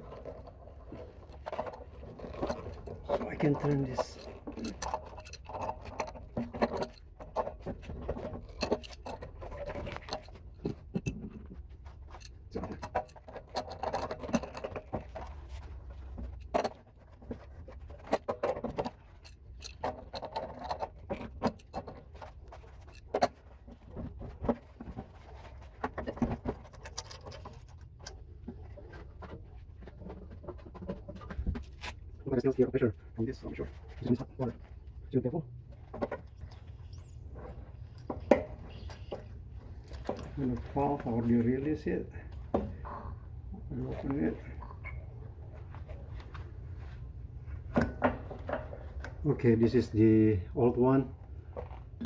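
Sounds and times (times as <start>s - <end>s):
wrench clicking and scraping metal: 26.6s - 28.2s.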